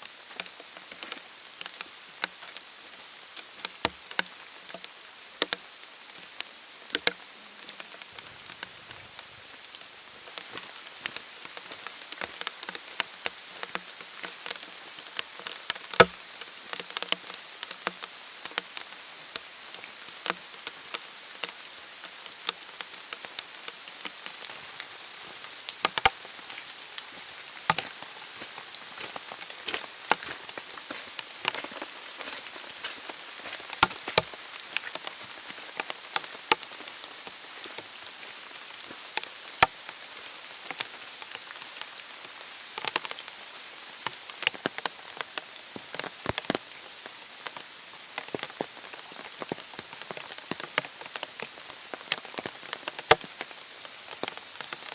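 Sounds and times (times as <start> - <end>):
rain falling in a forest: 0.0 - 54.9
heavy raindrops striking: 20.1 - 54.9.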